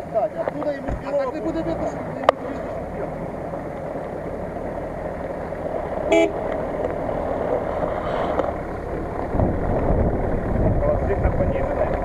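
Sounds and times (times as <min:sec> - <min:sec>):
car horn toot: 0:06.1 - 0:06.5.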